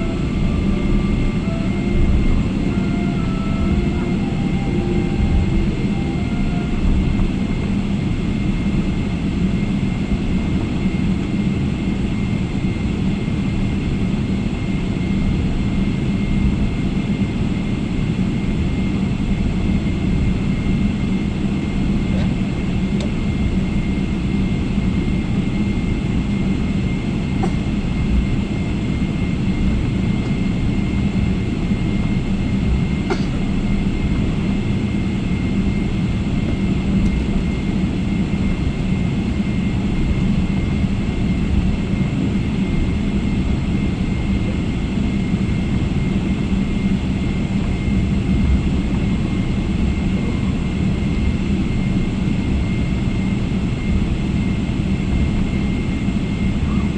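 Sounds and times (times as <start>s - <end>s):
faint high whine: 0.0s - 9.2s
jet engine and airflow drone: 0.0s - 56.9s.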